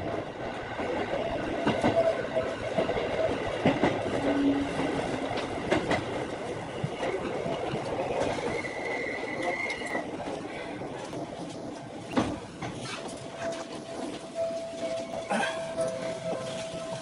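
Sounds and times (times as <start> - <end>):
train running noise: 0.0 - 17.0
wheel clacks over rail joints: 0.0 - 17.0.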